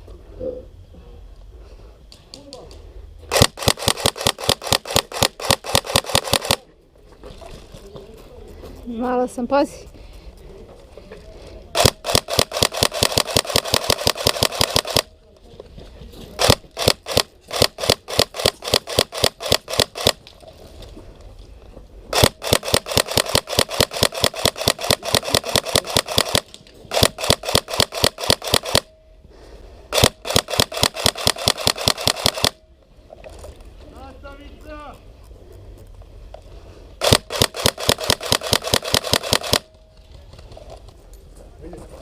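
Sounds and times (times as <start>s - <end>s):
airsoft rifle firing full auto: 3.3s - 6.6s, 11.7s - 15.1s, 16.4s - 20.2s, 22.1s - 29.0s, 29.9s - 32.6s, 37.0s - 39.7s.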